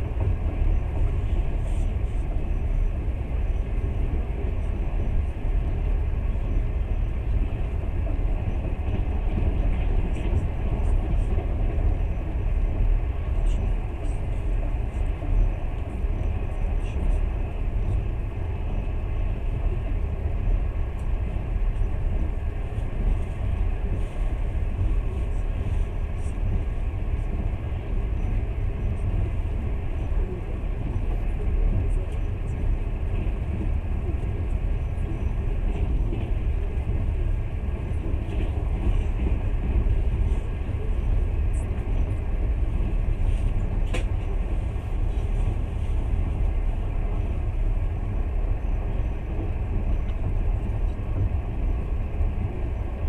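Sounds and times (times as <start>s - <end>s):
train rumbling on rails: 0.0s - 53.0s.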